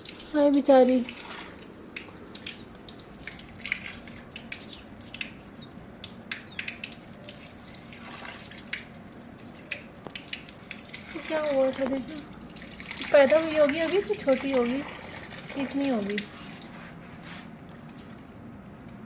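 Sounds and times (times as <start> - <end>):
water dripping: 0.0 - 16.7, 17.4 - 19.0
baby bird peeping: 2.4 - 2.7, 3.6 - 6.8, 10.7 - 14.6.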